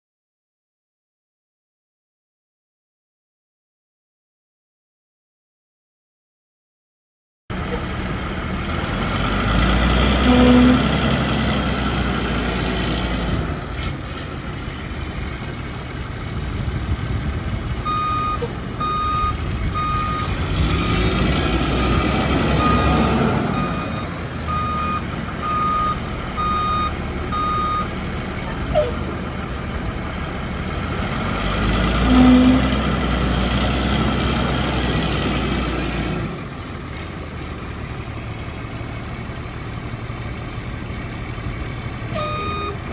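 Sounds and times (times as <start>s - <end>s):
diesel truck engine running: 7.5s - 42.9s
backup alarm beeping: 17.9s - 21.1s, 21.8s - 27.9s.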